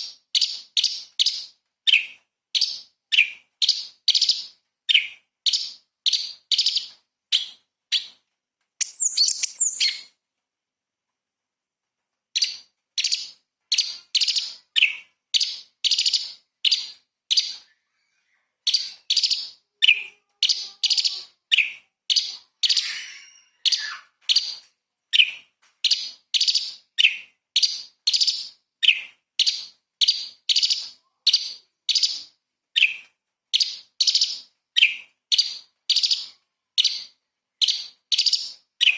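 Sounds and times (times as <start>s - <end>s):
bird singing sharp notes: 8.8s - 10.1s
high gliding bird twitters: 8.8s - 10.1s, 22.6s - 24.0s.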